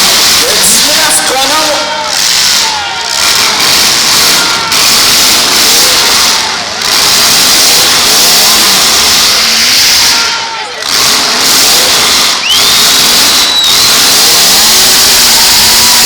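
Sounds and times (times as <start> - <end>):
car engines revving: 0.0 - 16.0
high squeal: 9.1 - 10.8, 12.2 - 16.0.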